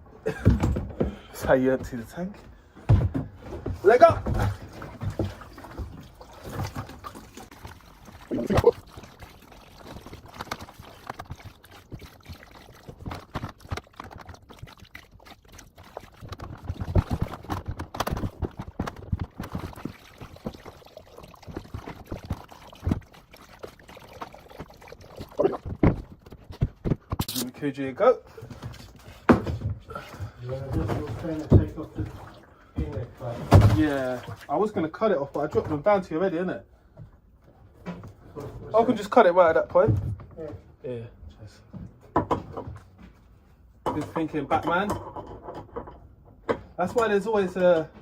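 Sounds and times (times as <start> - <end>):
water pouring into buckets: 3.8 - 27.5, 29.9 - 35.6
knocks and clatter: 16.1 - 20.6.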